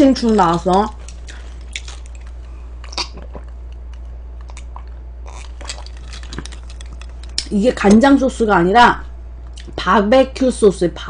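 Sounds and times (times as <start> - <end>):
person chewing food: 0.2 - 7.5
mouth clicks: 2.8 - 5.6.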